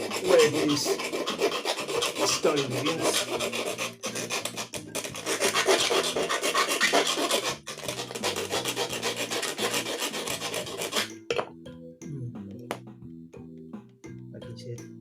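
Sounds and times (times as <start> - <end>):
low held electronic notes: 10.3 - 15.0.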